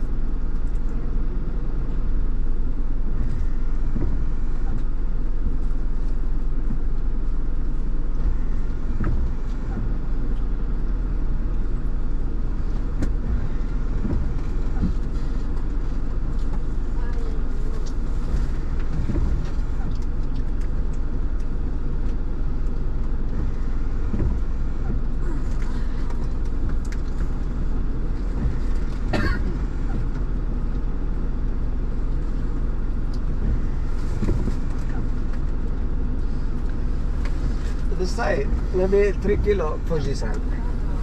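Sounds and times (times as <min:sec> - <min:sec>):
engine and tyre rumble: 0:00.0 - 0:41.0.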